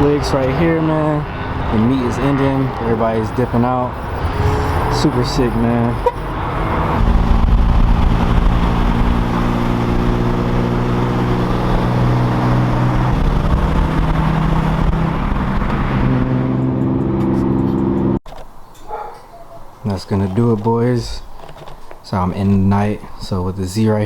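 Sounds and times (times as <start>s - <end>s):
car engine running: 0.0s - 18.2s.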